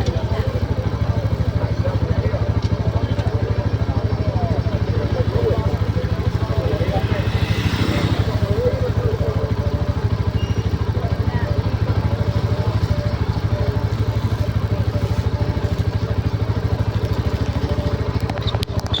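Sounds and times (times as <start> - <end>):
engine idling with pulsing beat: 0.0 - 19.0.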